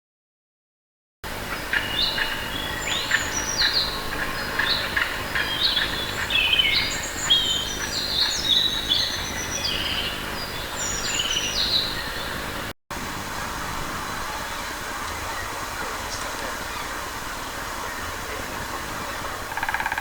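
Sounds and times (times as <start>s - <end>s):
birds chirping: 1.6s - 12.7s.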